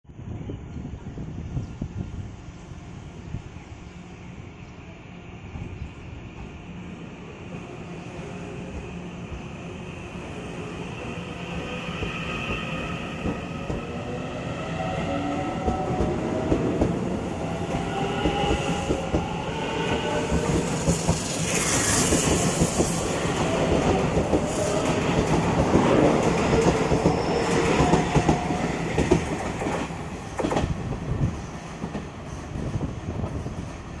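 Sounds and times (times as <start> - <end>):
harsh hiss: 20.2 - 23.6.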